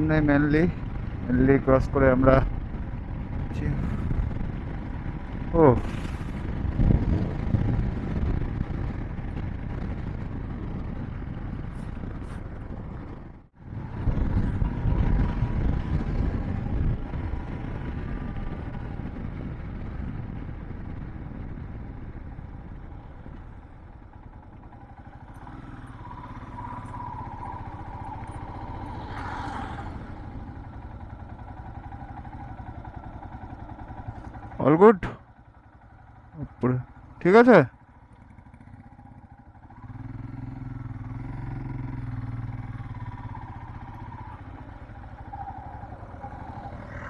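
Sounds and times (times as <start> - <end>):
wind noise: 0.0 - 34.5
motorcycle engine rumble: 0.0 - 47.0
road noise: 0.0 - 47.0.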